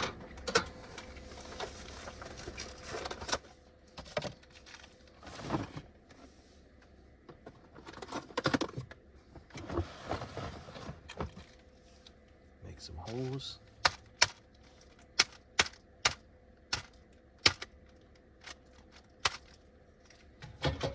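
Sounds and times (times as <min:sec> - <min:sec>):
faint steady hum: 0:00.0 - 0:20.9
box and plastic tray rustling: 0:00.8 - 0:06.2, 0:07.3 - 0:11.8.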